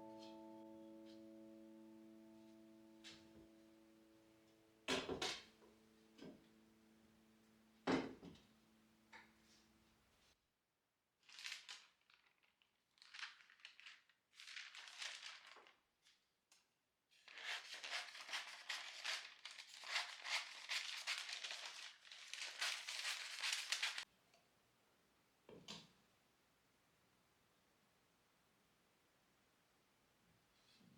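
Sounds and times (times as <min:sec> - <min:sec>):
crinkling and rustling: 0:11.2 - 0:16.2, 0:17.2 - 0:24.0.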